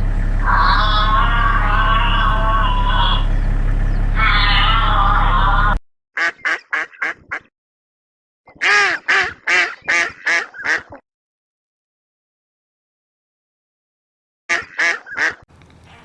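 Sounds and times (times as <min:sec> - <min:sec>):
loud pitched tone: 0:00.0 - 0:05.8
low hum: 0:00.0 - 0:05.8
bird calls: 0:00.0 - 0:07.0, 0:14.8 - 0:16.0.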